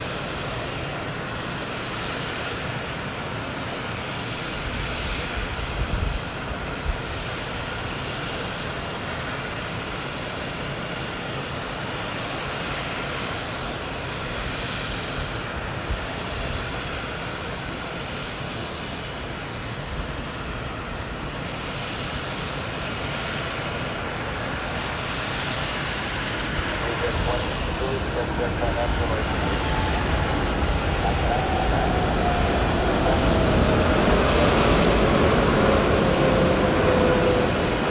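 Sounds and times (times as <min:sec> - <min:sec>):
jet engines rushing: 0:00.0 - 0:37.9.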